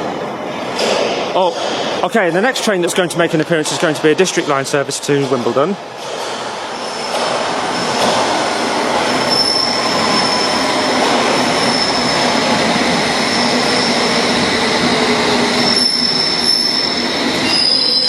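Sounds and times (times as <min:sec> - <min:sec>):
high-pitched wheel squeal: 0:09.2 - 0:10.6, 0:15.7 - 0:18.0
train rumble: 0:12.1 - 0:18.0.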